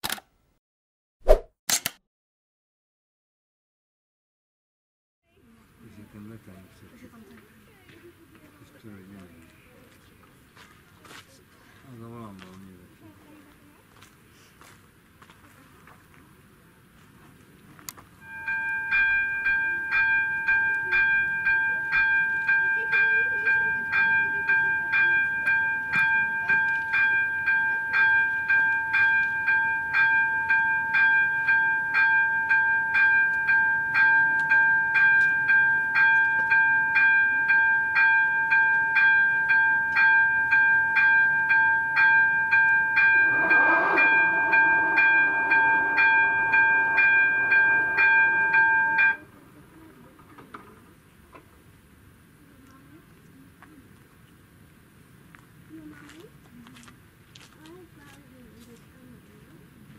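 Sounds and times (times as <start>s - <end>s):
level crossing bell ringing: 18.2s - 49.4s.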